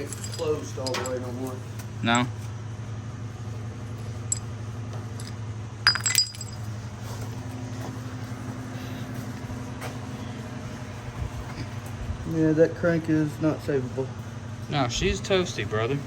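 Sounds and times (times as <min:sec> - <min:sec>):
metal parts and tools clinking: 0:00.0 - 0:01.6, 0:04.2 - 0:06.9
steady low hum: 0:00.0 - 0:16.0.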